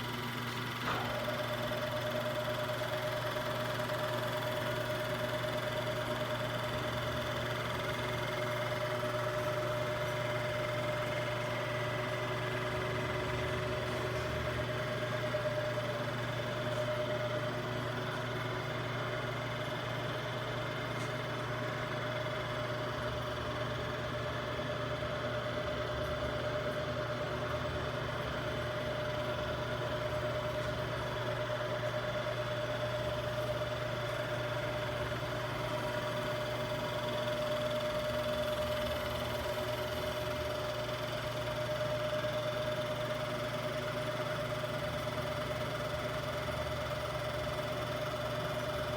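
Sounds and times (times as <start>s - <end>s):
grinder machine humming and whining: 0.0s - 48.9s.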